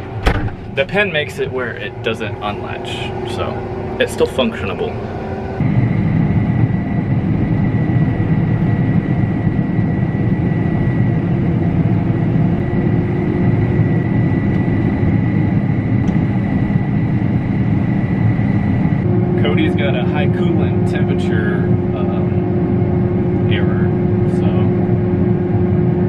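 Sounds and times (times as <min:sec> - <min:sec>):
combine harvester rumbling: 0:00.0 - 0:26.0
steady high whine: 0:00.0 - 0:26.0.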